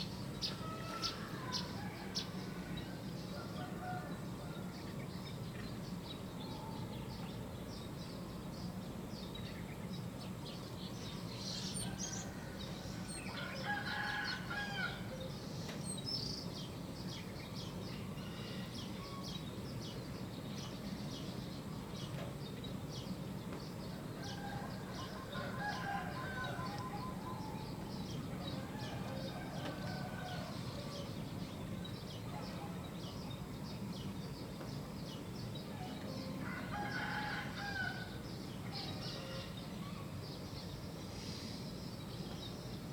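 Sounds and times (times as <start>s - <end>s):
songbirds chirping: 0.0s - 42.9s
roosters crowing: 11.9s - 15.1s, 24.0s - 31.2s, 36.1s - 38.2s.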